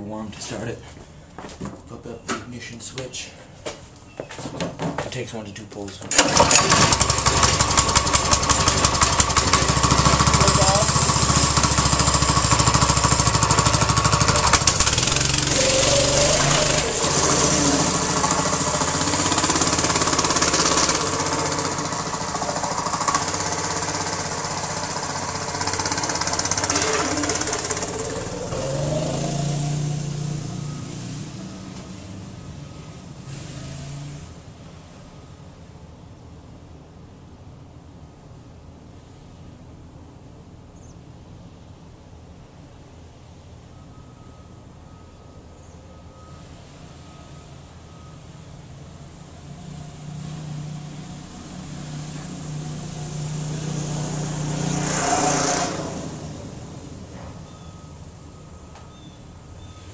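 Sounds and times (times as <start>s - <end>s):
small engine running under throttle: 6.3s - 31.0s, 49.9s - 56.5s.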